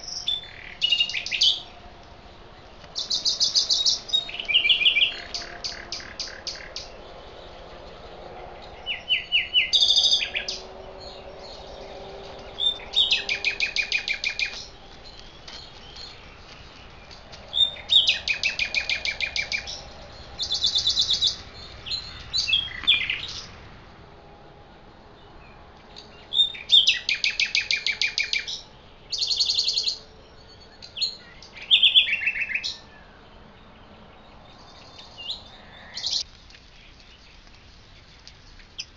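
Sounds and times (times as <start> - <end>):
songbird singing high notes: 0.0 - 1.8, 3.0 - 7.5, 8.8 - 16.2.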